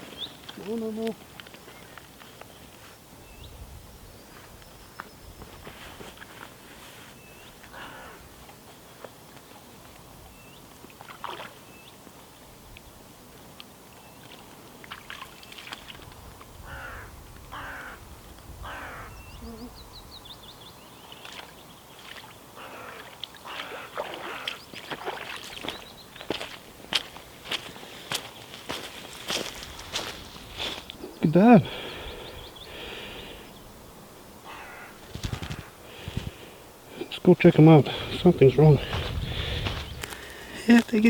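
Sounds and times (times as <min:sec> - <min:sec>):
birds scuffling: 0:00.0 - 0:03.3, 0:04.2 - 0:12.4, 0:21.0 - 0:41.0
birds chirping and trilling: 0:18.6 - 0:22.9, 0:25.5 - 0:26.5, 0:27.5 - 0:41.0
footsteps on ground: 0:24.7 - 0:41.0.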